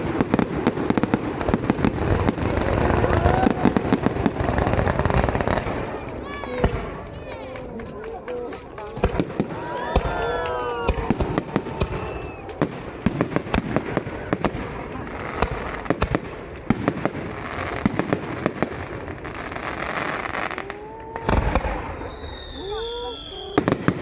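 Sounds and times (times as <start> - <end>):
fireworks crackling pops: 0.0 - 24.0
fireworks hissing: 16.8 - 24.0.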